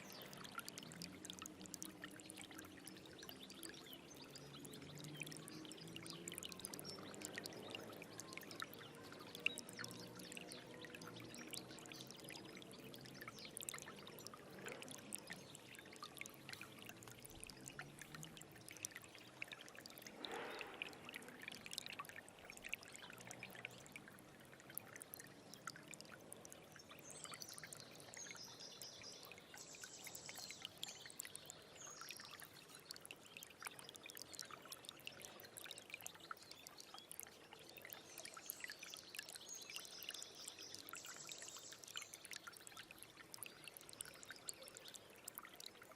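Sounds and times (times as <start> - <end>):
stream babbling over stones: 0.0 - 45.9.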